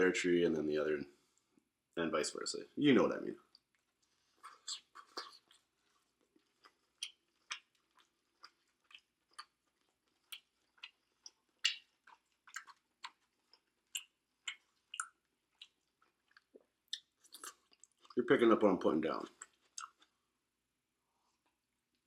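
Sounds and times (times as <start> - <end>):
chewing food with mouth smacks: 3.5 - 18.2, 19.2 - 20.2.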